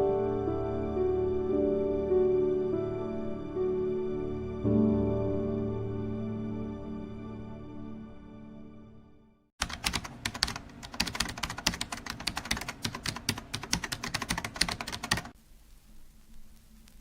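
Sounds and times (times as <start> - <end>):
music: 0.0 - 9.5
rapid irregular clicking: 9.6 - 15.4.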